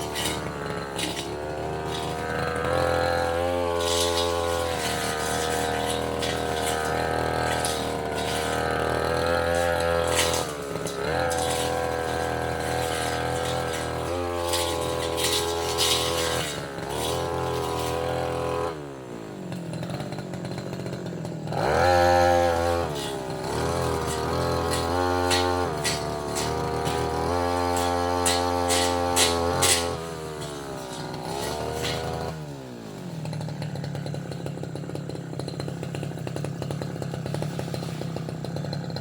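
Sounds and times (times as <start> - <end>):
brush cutter running: 0.0 - 39.0
blade clicking against wood: 3.8 - 18.0, 24.0 - 32.2.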